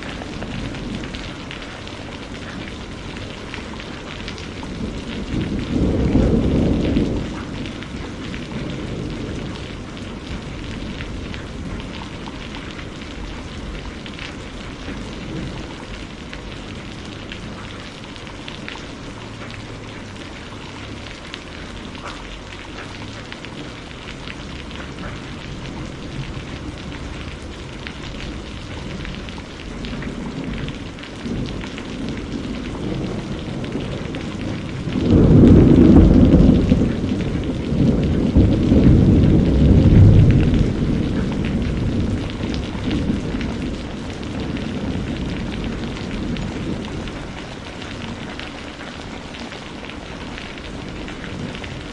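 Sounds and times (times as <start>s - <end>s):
low thunder rumbles: 0.0s - 51.9s
steady rainfall: 0.0s - 51.9s
loud thunder clap: 4.3s - 12.6s, 28.0s - 47.3s.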